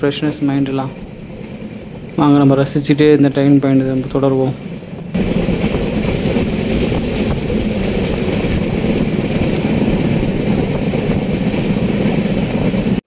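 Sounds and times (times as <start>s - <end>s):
train wheels rumbling on rails: 0.0s - 13.0s
rushing air: 4.6s - 13.0s.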